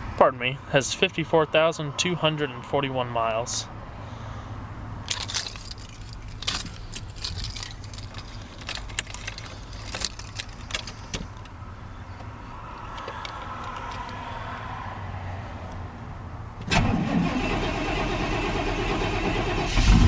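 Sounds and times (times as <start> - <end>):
keys jangling and clicking: 5.1 - 11.4
truck engine cold-starting: 16.6 - 20.0.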